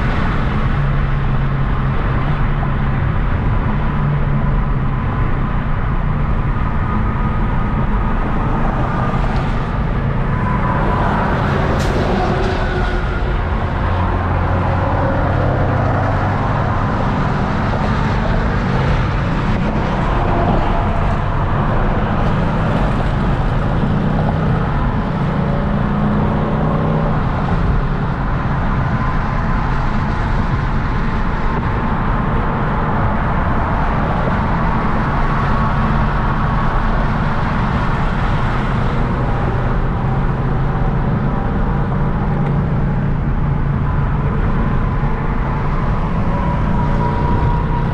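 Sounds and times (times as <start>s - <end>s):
car engine driving: 0.0s - 47.9s.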